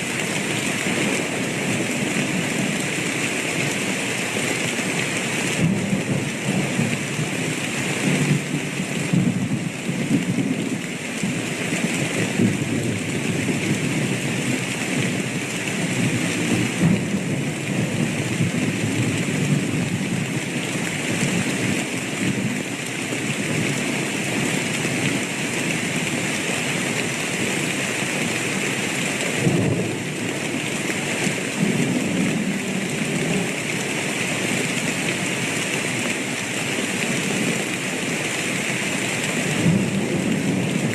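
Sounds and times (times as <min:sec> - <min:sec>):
rain pouring: 0:00.0 - 0:40.9
thunder rumbling: 0:08.0 - 0:11.4.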